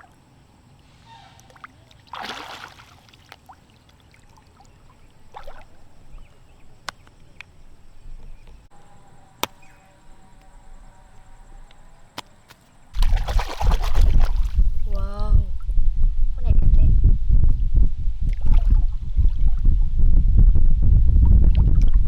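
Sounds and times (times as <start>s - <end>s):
water sloshing and splashing: 1.2s - 7.2s, 12.9s - 15.1s.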